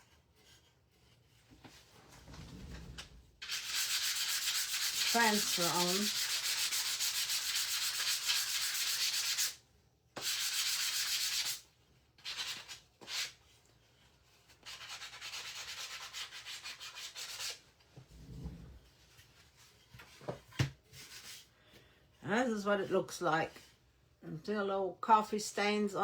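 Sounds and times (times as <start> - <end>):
sandpaper rubbing on wood: 3.4 - 9.6, 10.2 - 11.6, 14.6 - 17.6.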